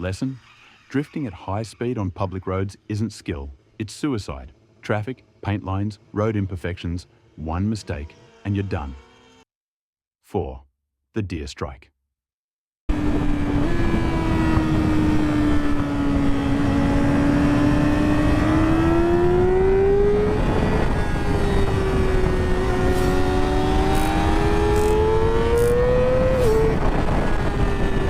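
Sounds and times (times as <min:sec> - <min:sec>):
motorcycle engine under throttle: 0:12.9 - 0:28.0.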